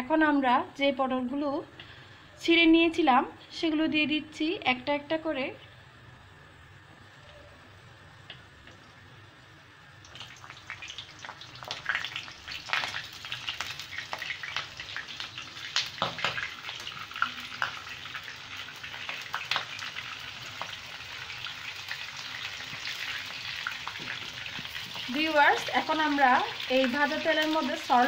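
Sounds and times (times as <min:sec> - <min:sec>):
vegetables sizzling in hot oil: 0:09.4 - 0:28.0.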